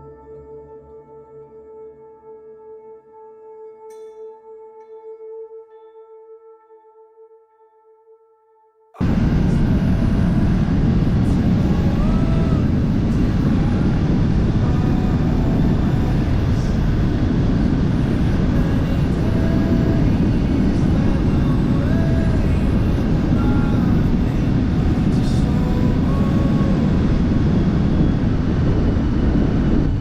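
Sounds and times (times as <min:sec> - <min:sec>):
wind rush over microphone: 0:09.0 - 0:30.0.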